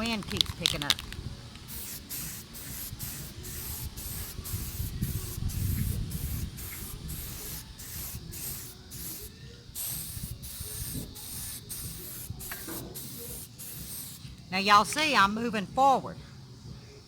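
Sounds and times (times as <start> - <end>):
spray paint can hissing: 0.1 - 14.3
wind on microphone: 3.0 - 8.7, 10.0 - 12.6.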